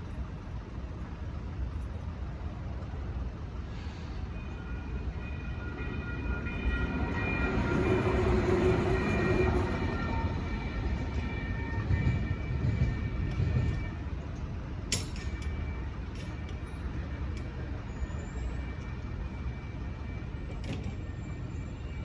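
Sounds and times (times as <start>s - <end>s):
light rail train rumbling: 0.0s - 22.0s.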